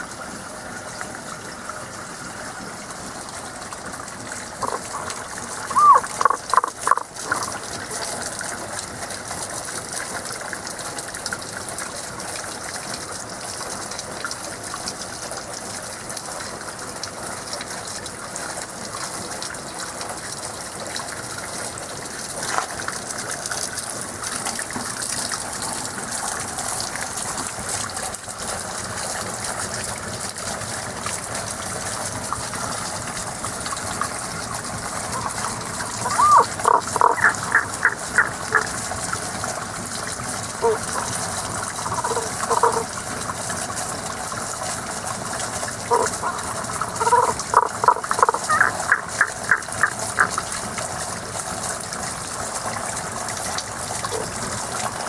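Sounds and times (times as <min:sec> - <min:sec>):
spring water running: 0:00.0 - 0:55.0
frog calls: 0:04.6 - 0:08.0, 0:35.0 - 0:38.8, 0:40.6 - 0:42.9, 0:45.9 - 0:50.5.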